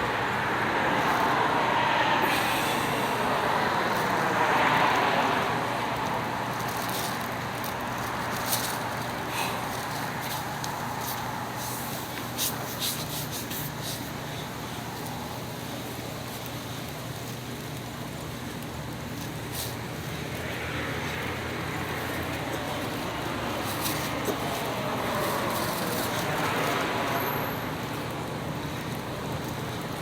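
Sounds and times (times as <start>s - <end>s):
vehicle passing by: 0.0s - 11.7s
road traffic noise: 0.0s - 30.0s.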